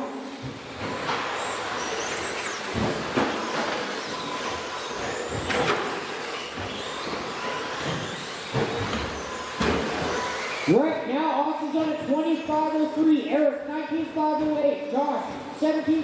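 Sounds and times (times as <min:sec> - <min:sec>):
high electric motor whines: 0:00.0 - 0:13.3
rc trucks tyre and drivetrain noise: 0:00.3 - 0:10.8
rc trucks knocking: 0:00.4 - 0:10.7.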